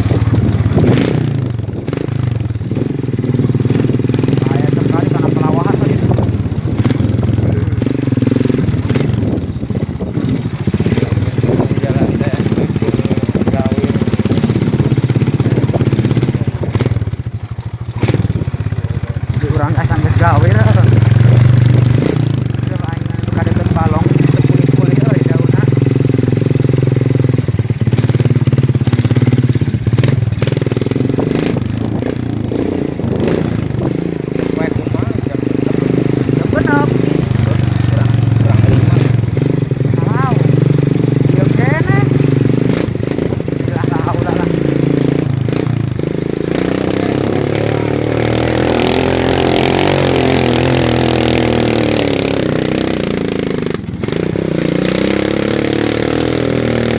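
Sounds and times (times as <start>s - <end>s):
motorcycle engine idling: 0.0s - 56.9s.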